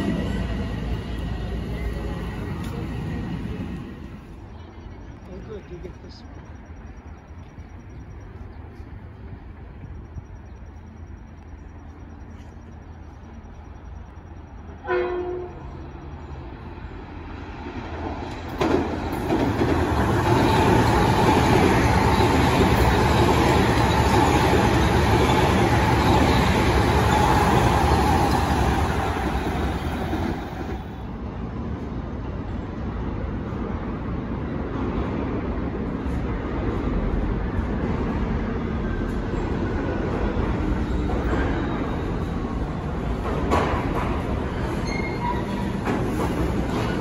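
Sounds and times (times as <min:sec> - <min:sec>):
train wheels rumbling on rail: 0:00.0 - 0:47.0
train whine: 0:00.0 - 0:47.0
train horn blast: 0:14.8 - 0:15.7.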